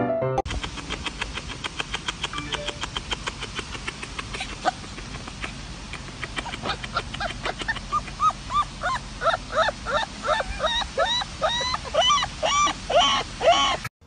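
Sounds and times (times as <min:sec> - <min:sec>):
puppy yipping: 0:06.4 - 0:13.9.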